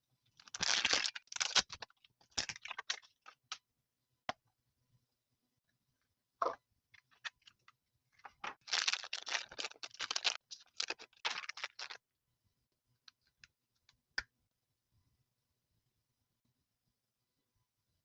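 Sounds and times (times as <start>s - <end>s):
plastic packaging clicking and crinkling: 0.4s - 3.6s, 8.3s - 12.0s.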